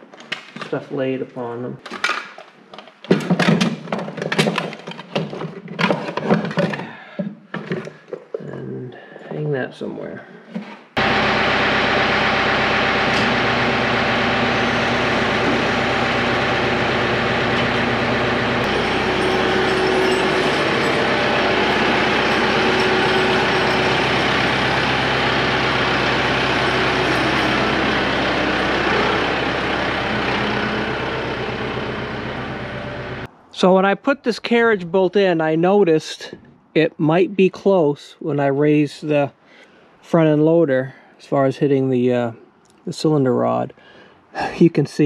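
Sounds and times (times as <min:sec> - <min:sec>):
tractor diesel engine running: 0:11.0 - 0:33.3.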